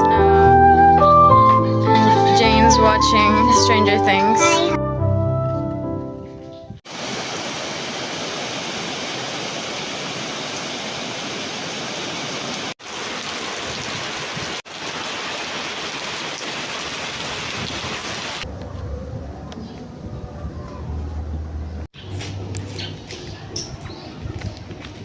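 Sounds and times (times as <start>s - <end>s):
rain rushing: 6.9s - 18.5s.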